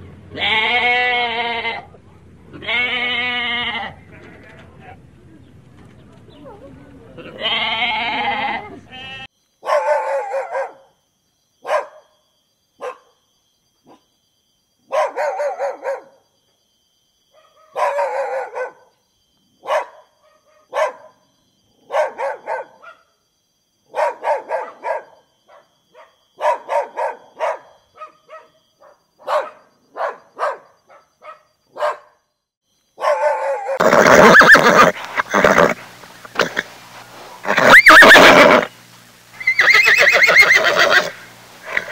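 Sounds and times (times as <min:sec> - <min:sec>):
dog barking: 0:09.6 - 0:11.0, 0:11.6 - 0:12.2, 0:12.8 - 0:13.2, 0:13.8 - 0:14.1, 0:14.9 - 0:16.2, 0:17.3 - 0:18.9, 0:19.6 - 0:21.2, 0:21.8 - 0:23.1, 0:23.9 - 0:32.2, 0:33.0 - 0:33.8
horse whinny: 0:33.8 - 0:36.7, 0:37.4 - 0:38.7, 0:39.4 - 0:41.9.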